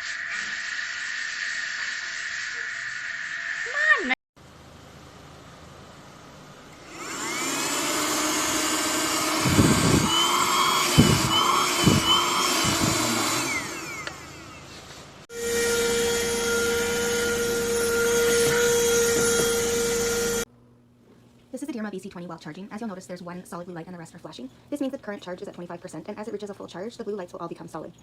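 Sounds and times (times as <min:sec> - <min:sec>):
steady motor hum: 0:04.4 - 0:20.5
vacuum cleaner motor whining: 0:06.7 - 0:20.5.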